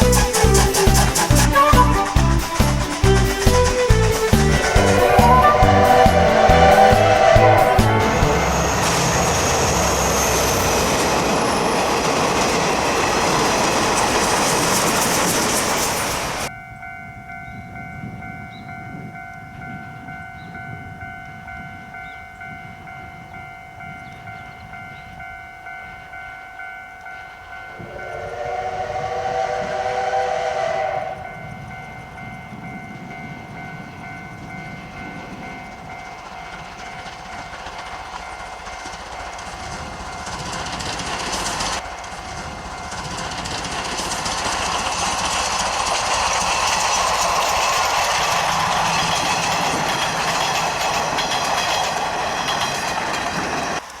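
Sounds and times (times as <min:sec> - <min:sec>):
steam whistle blast: 0:00.0 - 0:10.8, 0:27.7 - 0:31.8
steam locomotive running: 0:00.0 - 0:54.0.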